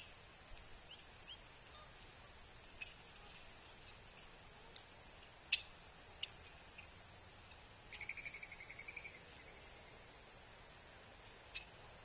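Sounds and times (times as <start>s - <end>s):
bird call notes and trill: 7.5s - 9.6s.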